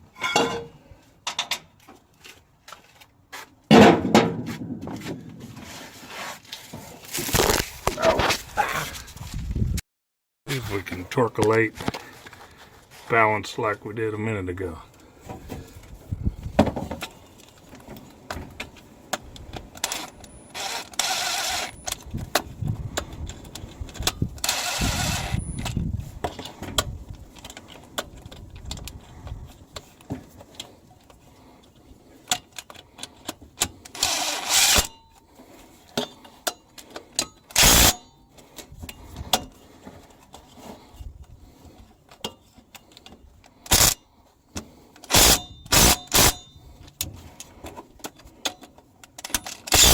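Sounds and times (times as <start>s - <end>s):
impact driver driving bolts: 37.2s - 38.0s, 43.7s - 44.0s, 45.1s - 46.4s, 49.2s - 49.9s.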